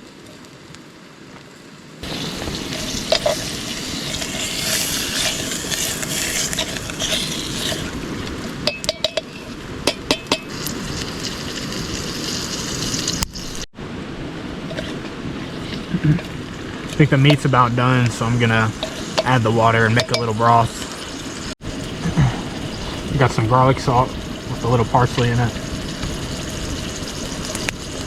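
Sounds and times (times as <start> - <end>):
meat sizzling in a pot: 2.0 - 13.7, 14.7 - 28.0
metal utensil clinking on pot: 8.7 - 10.5, 19.9 - 20.3.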